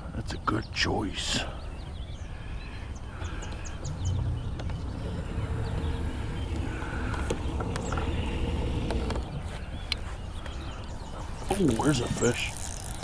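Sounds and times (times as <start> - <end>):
birds chirping: 0.0 - 13.0
electric trolling motor humming: 3.1 - 13.0
low rumble: 3.5 - 9.4.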